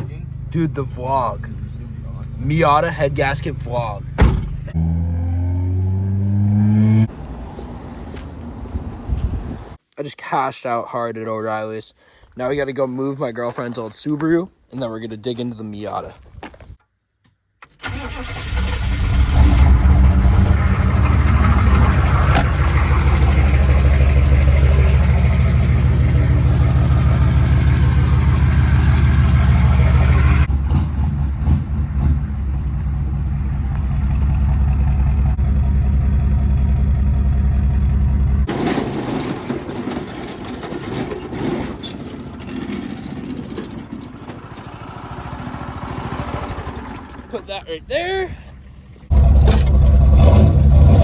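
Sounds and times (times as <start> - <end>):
car engine running: 0.0 - 7.1, 18.9 - 40.3, 42.4 - 48.0.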